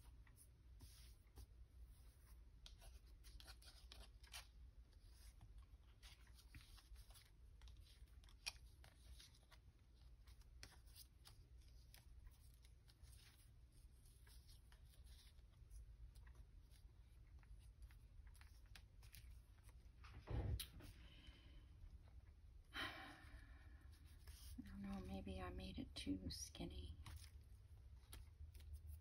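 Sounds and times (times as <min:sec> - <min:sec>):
low steady hum: 0:00.0 - 0:29.0
paper and fabric rustling: 0:24.0 - 0:25.2.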